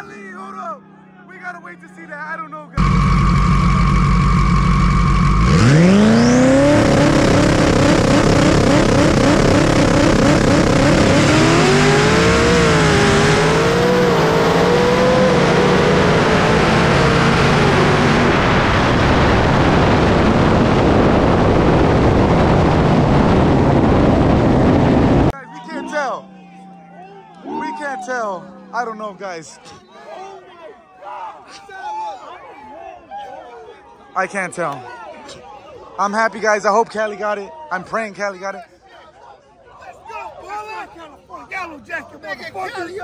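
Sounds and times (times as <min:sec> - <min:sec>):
road noise: 0:00.0 - 0:29.8
car engine revving with rising whine: 0:02.7 - 0:29.0
wind noise: 0:16.6 - 0:25.3.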